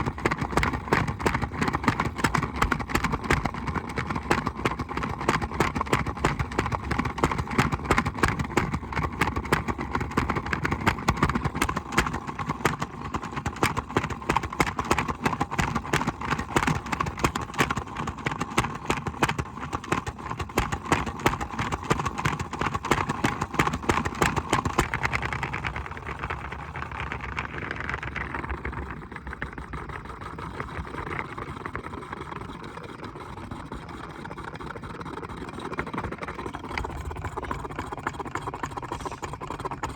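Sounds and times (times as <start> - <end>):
rapid clatter of knocks: 0.0 - 31.3.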